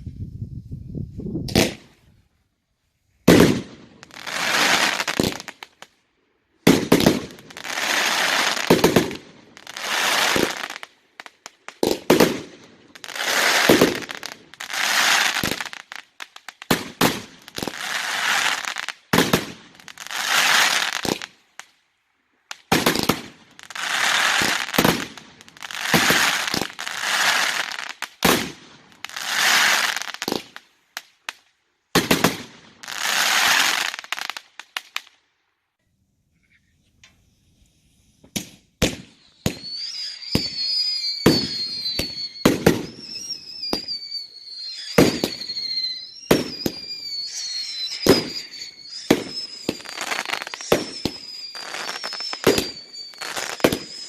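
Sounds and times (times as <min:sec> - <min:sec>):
fireworks banging: 0:03.2 - 0:05.9, 0:06.6 - 0:15.7, 0:16.5 - 0:20.0, 0:22.6 - 0:27.6, 0:31.9 - 0:32.9, 0:38.2 - 0:54.0
fireworks crackling: 0:03.2 - 0:06.0, 0:06.6 - 0:21.8, 0:22.5 - 0:35.2, 0:37.0 - 0:54.0.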